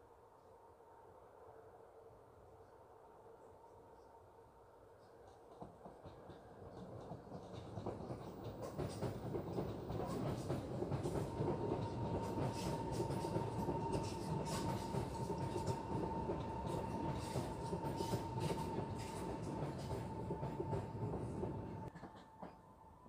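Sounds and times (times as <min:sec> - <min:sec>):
train whine: 0:00.0 - 0:23.0
train wheels rumbling on rail: 0:05.2 - 0:22.8.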